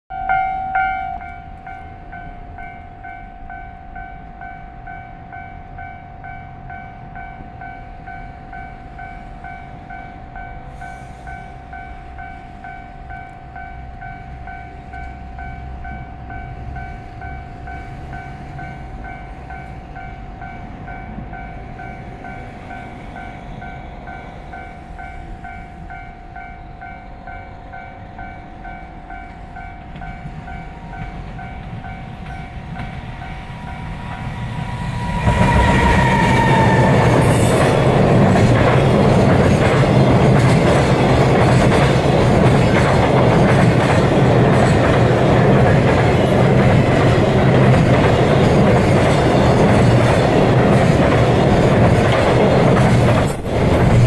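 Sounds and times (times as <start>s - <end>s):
pulsing ringing tone: 0.1s - 37.1s
freight train rumbling on rails: 0.1s - 54.0s.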